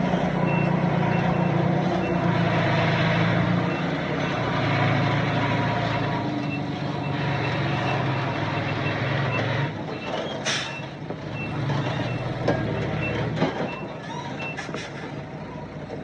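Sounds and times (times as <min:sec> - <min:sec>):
diesel engine running: 0:00.0 - 0:16.0
reversing alarm beeping: 0:00.4 - 0:02.3, 0:06.4 - 0:14.6.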